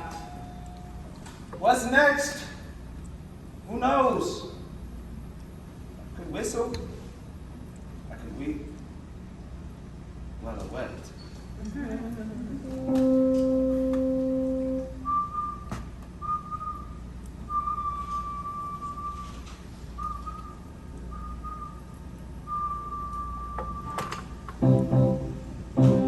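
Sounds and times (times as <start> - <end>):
band instruments playing: 12.6 - 15.5, 24.6 - 26.0
person whistling a slow tune: 15.0 - 24.0.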